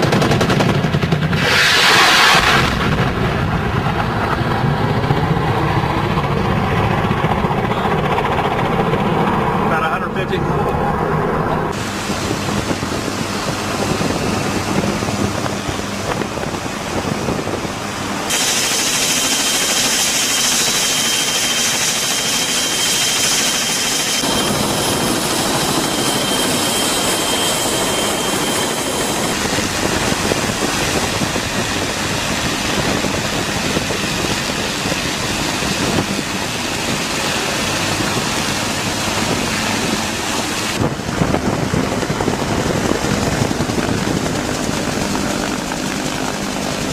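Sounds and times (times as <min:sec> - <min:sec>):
helicopter turbine and rotor: 0:00.0 - 0:46.9
thin high whine: 0:18.2 - 0:40.8.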